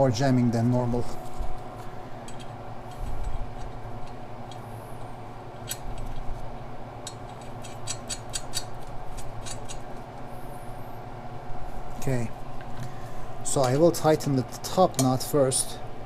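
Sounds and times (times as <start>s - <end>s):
steady low hum: 0.0s - 16.0s
wrench clicking: 7.0s - 9.8s.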